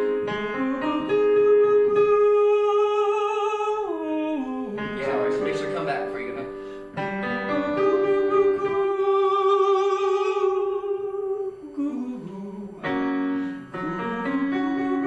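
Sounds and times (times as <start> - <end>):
man singing vocal exercise: 0.5 - 5.6, 7.6 - 15.0
instrumental accompaniment: 4.6 - 10.5.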